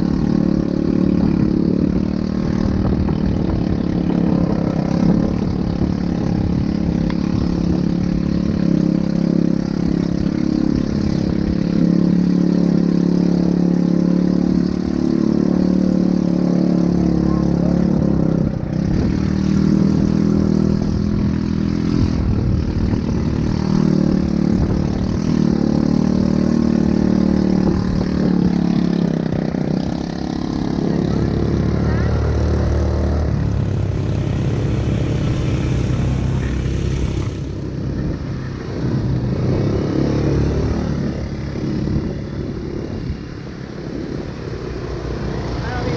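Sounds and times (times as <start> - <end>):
atv engine running: 0.0 - 45.9.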